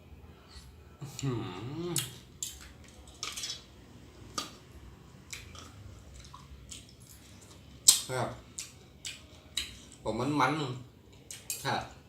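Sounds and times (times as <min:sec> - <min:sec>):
person chewing: 0:01.1 - 0:03.6, 0:04.2 - 0:10.0.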